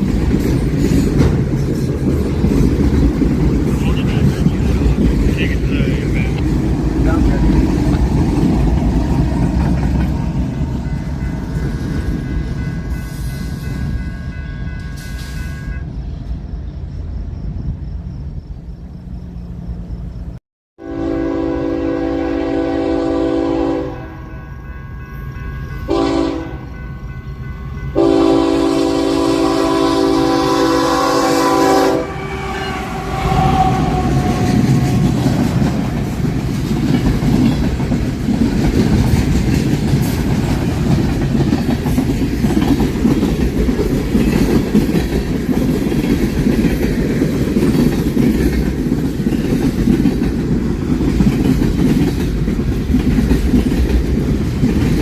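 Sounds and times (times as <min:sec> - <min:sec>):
train wheels rumbling on rails: 0:00.0 - 0:55.0
locomotive air horn blasts: 0:20.8 - 0:24.7, 0:25.8 - 0:26.8, 0:27.9 - 0:35.1.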